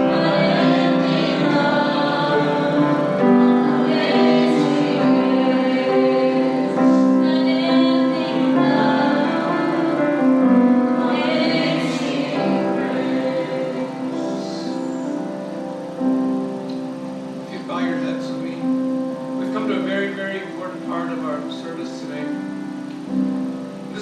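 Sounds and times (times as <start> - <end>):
group singing a slow hymn: 0.0 - 16.4
piano accompaniment: 0.0 - 24.0.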